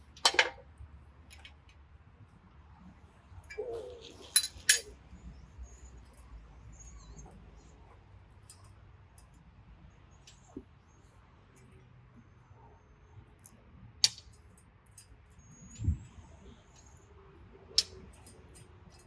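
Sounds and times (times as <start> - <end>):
metal bolts clinking: 0.2 - 0.6, 3.5 - 4.9.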